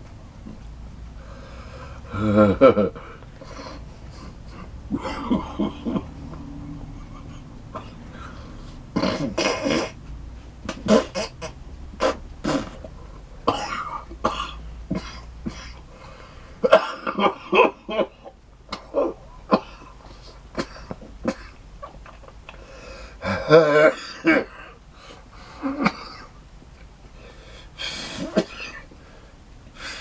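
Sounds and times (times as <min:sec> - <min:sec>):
man coughing: 0:02.0 - 0:06.3, 0:07.0 - 0:08.3, 0:09.0 - 0:10.0, 0:10.7 - 0:12.9, 0:13.5 - 0:15.8, 0:16.6 - 0:22.3, 0:23.2 - 0:24.8, 0:25.6 - 0:26.3, 0:27.9 - 0:28.9
man clearing throat: 0:02.0 - 0:06.4, 0:07.0 - 0:08.2, 0:08.9 - 0:10.0, 0:10.6 - 0:15.9, 0:16.6 - 0:22.3, 0:23.2 - 0:24.8, 0:25.6 - 0:26.3, 0:28.0 - 0:28.9.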